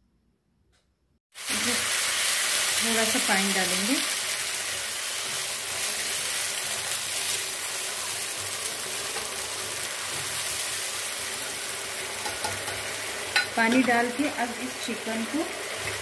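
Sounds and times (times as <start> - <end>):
food sizzling in a pan: 1.3 - 16.0.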